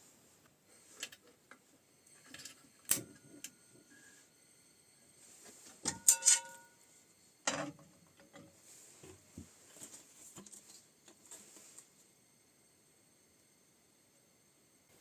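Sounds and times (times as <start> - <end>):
sharp clinks with ringing: 5.9 - 6.8.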